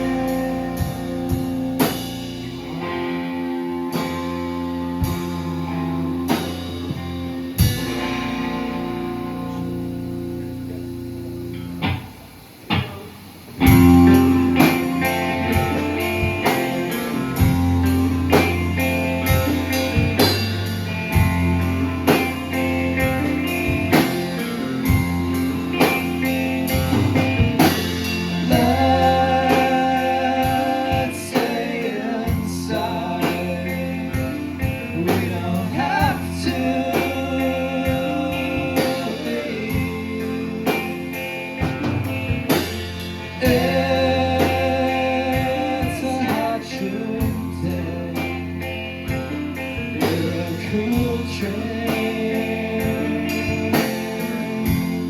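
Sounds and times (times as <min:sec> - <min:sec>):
bass guitar: 0:00.0 - 0:55.0
drum kit: 0:00.0 - 0:55.0
electric guitar: 0:00.0 - 0:55.0
person singing: 0:21.6 - 0:41.7, 0:43.3 - 0:55.0.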